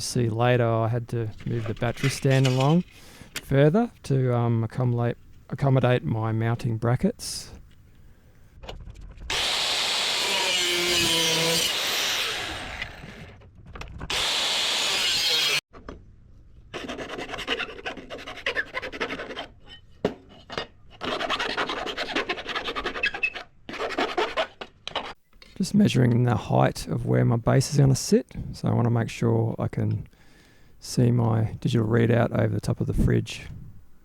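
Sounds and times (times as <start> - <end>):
saw cutting aluminium: 9.3 - 13.4, 14.1 - 15.6, 16.7 - 19.7, 20.4 - 24.6.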